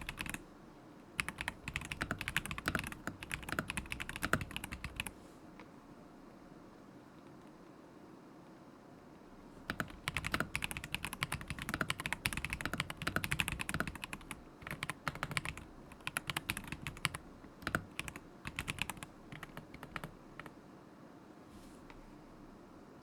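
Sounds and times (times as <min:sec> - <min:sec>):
mechanical keyboard typing: 0:00.0 - 0:00.4, 0:01.2 - 0:05.1, 0:09.7 - 0:20.5.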